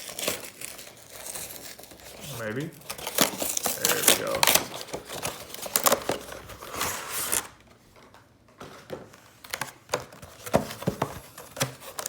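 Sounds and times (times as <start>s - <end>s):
plastic wrapping crinkling: 0.0s - 7.5s.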